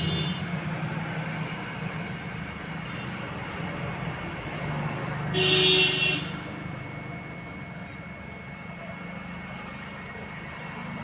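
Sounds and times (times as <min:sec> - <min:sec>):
vehicle horn: 0:00.0 - 0:00.5, 0:05.3 - 0:06.4
road traffic noise: 0:00.0 - 0:11.0.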